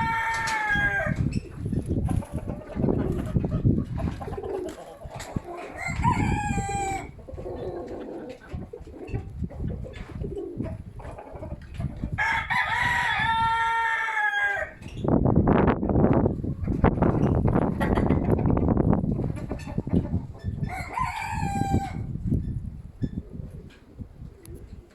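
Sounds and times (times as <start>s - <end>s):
rooster crowing: 0.0s - 1.2s, 5.8s - 7.1s, 12.2s - 14.8s, 20.7s - 22.1s
wind rumbling on microphone: 0.0s - 24.9s.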